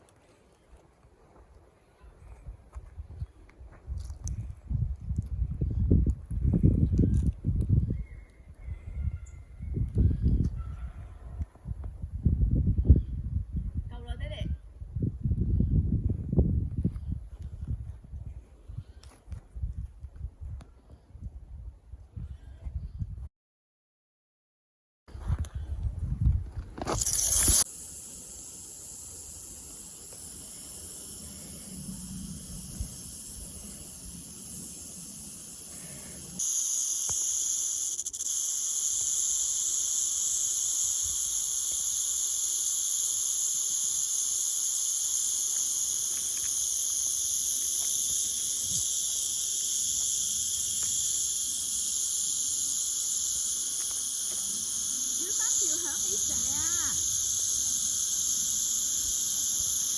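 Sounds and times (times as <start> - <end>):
high-pitched insect chorus: 26.9 - 59.9.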